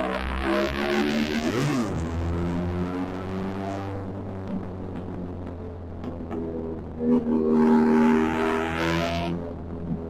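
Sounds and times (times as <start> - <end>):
motorcycle engine revving: 7.0 - 9.4.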